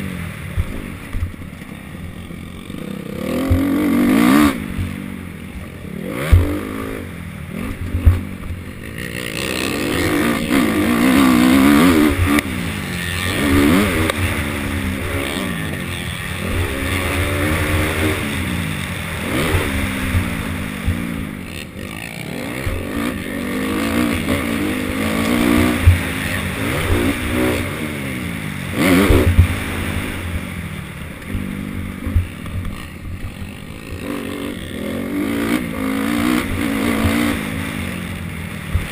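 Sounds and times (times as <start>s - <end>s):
motocross bike engine revving: 0.0s - 38.9s
sharp thumps: 6.2s - 6.7s.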